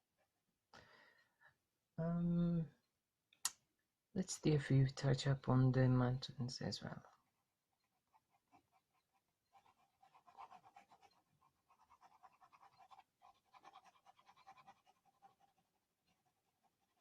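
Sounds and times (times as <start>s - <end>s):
pencil shading on paper: 7.4s - 17.0s.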